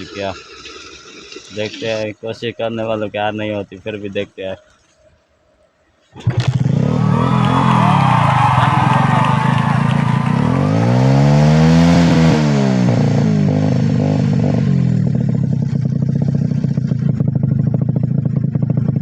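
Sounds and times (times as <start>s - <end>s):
motorcycle engine idling unevenly: 6.2s - 19.0s.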